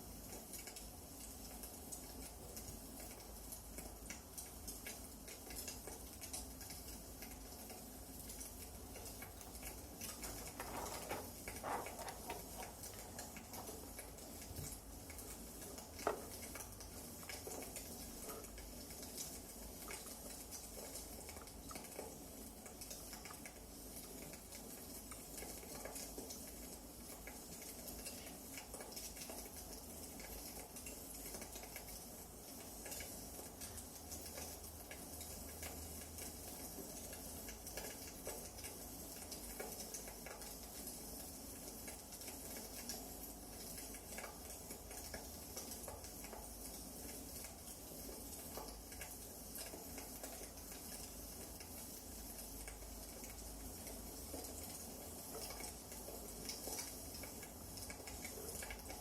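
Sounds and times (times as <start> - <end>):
wood fire crackling: 0.3 - 20.1.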